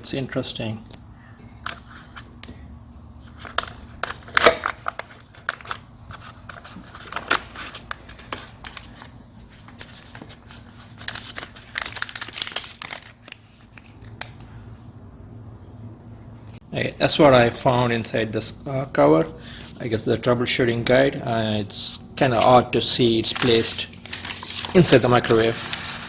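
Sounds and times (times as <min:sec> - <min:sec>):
paper crinkling and rustling: 0:01.4 - 0:14.5, 0:22.2 - 0:26.0.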